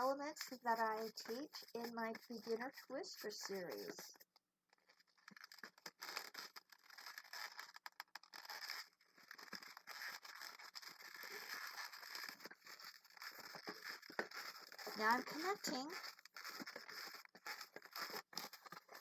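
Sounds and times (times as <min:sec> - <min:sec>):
balloons rubbing and scraping: 0:00.0 - 0:04.2, 0:05.3 - 0:19.0
small irregular clicks: 0:00.0 - 0:19.0.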